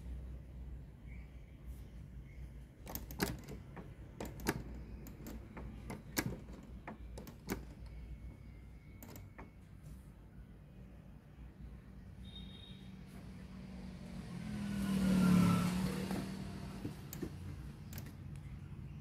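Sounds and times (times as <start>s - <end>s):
clicks and knocks from handling: 2.8s - 8.0s.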